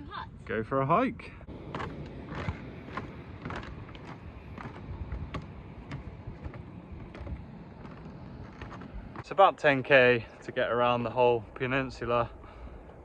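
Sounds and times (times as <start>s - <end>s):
low steady rumble: 0.0s - 13.0s
footsteps crunching on trail: 1.5s - 9.4s.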